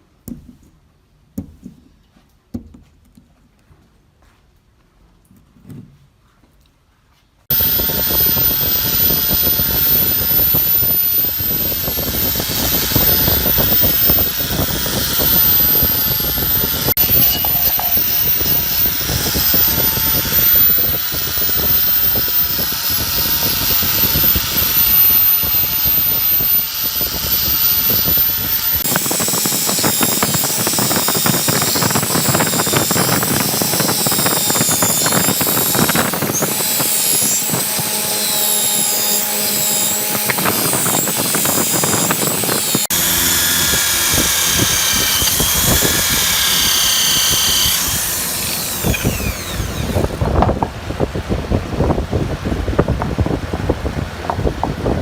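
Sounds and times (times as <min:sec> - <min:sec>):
power tool running: 0:07.5 - 0:50.8.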